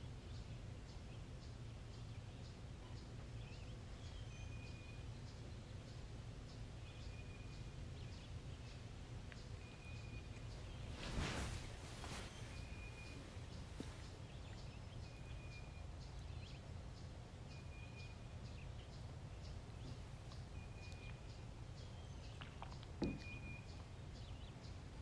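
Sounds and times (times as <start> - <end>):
low steady rumble: 0.0 - 25.0.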